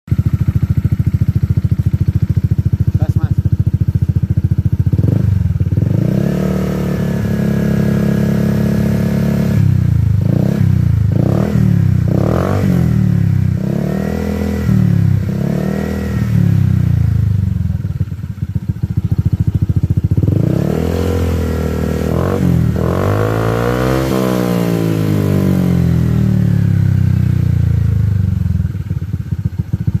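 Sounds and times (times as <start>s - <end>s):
scooter engine revving: 0.1s - 30.0s.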